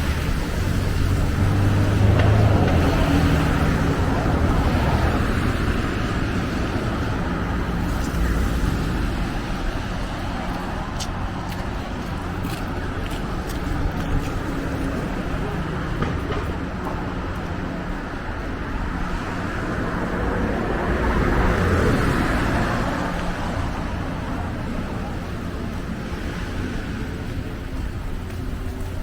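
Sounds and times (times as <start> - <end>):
road noise: 0.0 - 29.0
vehicles driving past: 0.0 - 29.0.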